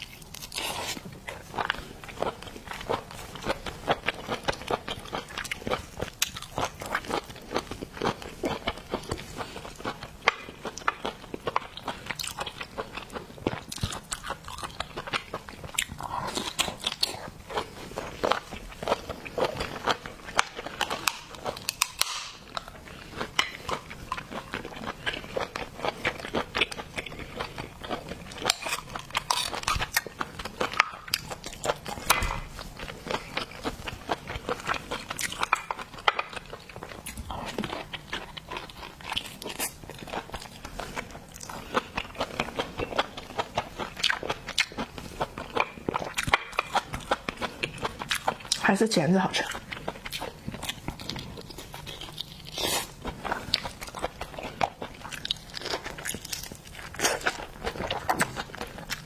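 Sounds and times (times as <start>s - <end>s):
chewing: 0.0s - 48.6s, 49.3s - 59.0s
crunching through shell: 13.4s - 48.4s.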